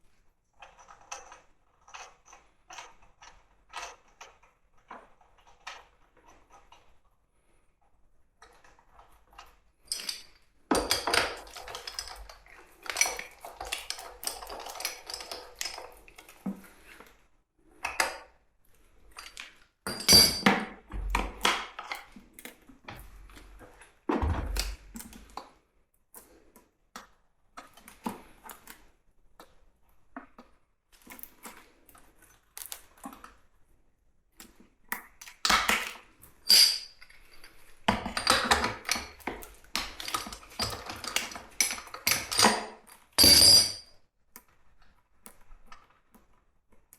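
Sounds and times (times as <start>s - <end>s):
metal tools clinking and scraping: 9.4s - 16.0s, 36.4s - 43.9s.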